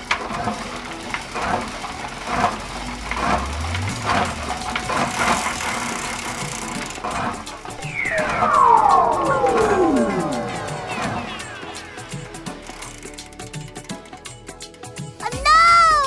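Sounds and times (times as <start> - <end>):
tractor engine running: 0.0 - 7.8
rattling: 0.1 - 7.8.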